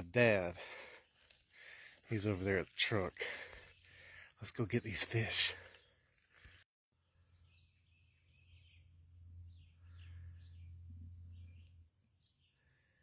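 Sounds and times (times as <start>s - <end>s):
birds chirping: 0.0s - 13.0s
low hum: 7.2s - 12.2s.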